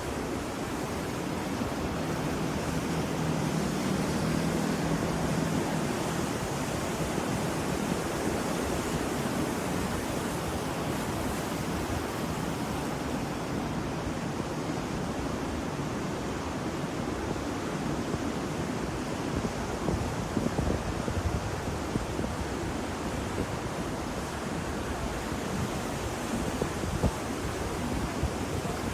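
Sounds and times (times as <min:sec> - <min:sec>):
ocean waves washing onto shore: 0:00.0 - 0:28.9.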